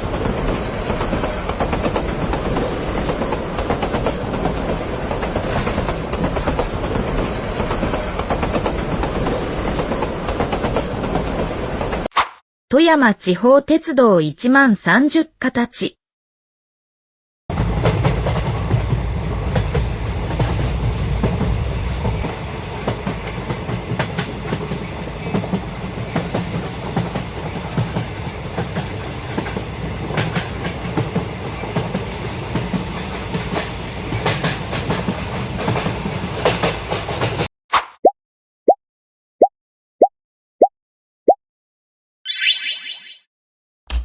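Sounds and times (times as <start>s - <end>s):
electric train rumbling on track: 0.0s - 12.0s, 17.5s - 37.5s.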